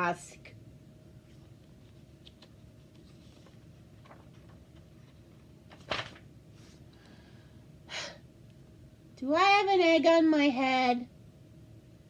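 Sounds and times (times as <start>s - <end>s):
faint room hiss: 0.0s - 12.0s
book page turning: 1.2s - 6.8s.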